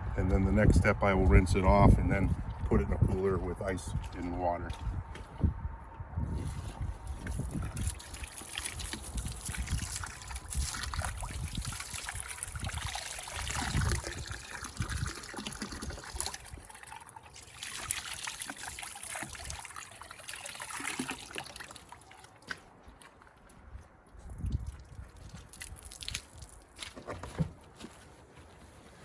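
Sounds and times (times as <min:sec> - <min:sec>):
running water splashing: 0:07.1 - 0:23.3.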